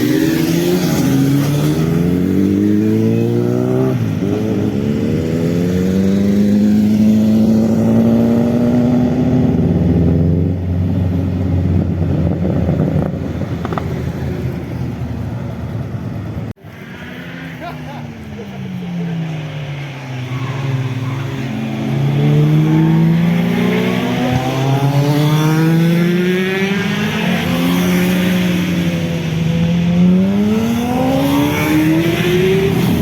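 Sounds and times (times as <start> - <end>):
motorcycle engine accelerating: 21.0 - 33.0.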